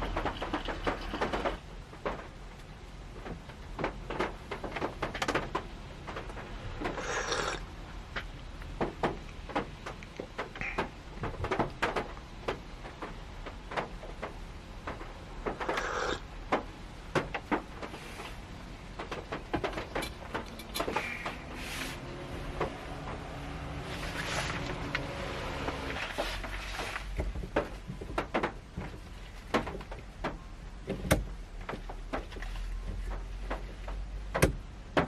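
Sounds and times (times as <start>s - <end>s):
rain on car roof: 0.0s - 35.0s.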